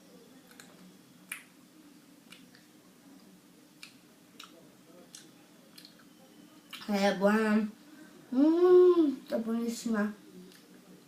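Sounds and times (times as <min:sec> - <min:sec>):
sharp clicks and mouth noises: 0:00.4 - 0:01.6, 0:02.2 - 0:02.7, 0:03.8 - 0:06.1.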